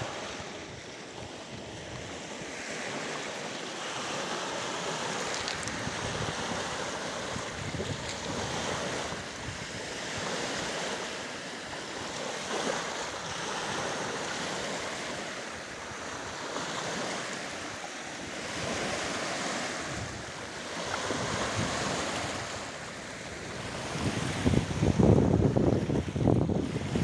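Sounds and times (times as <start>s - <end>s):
waves washing: 0.0s - 27.0s
wind: 0.0s - 27.0s
wind buffeting microphone: 5.1s - 11.0s, 18.3s - 27.0s.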